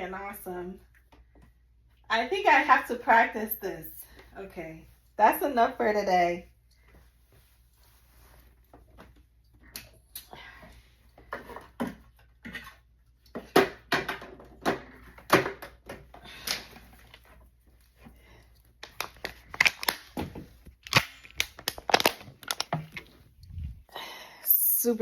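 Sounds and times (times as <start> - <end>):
rustling and crinkling: 6.6 - 9.7, 16.6 - 23.9.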